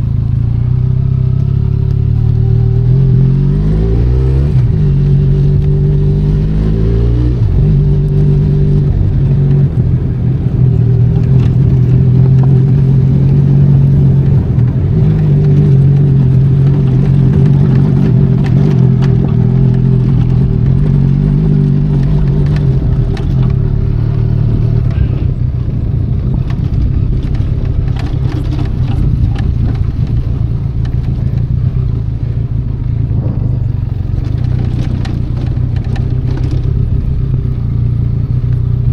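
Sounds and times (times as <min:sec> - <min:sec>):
motorcycle engine running under load: 0:00.0 - 0:03.5, 0:04.5 - 0:38.9
clicks and clatter: 0:10.6 - 0:25.2, 0:26.2 - 0:38.7.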